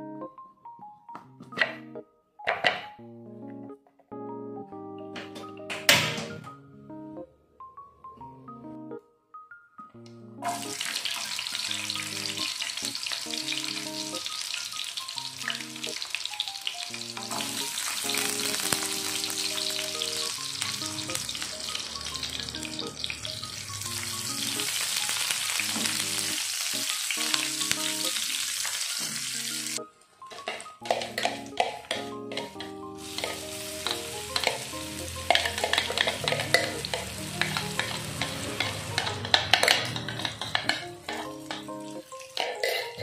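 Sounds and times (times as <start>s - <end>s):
light background music: 0.0s - 43.0s
shallots sizzling in hot oil: 10.4s - 29.8s, 30.5s - 43.0s.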